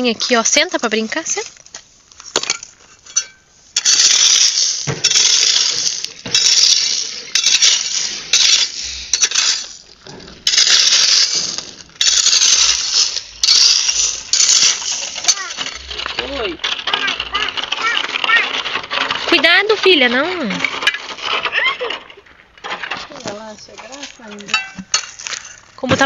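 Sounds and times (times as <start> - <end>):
pebbles clattering: 0.0 - 26.0.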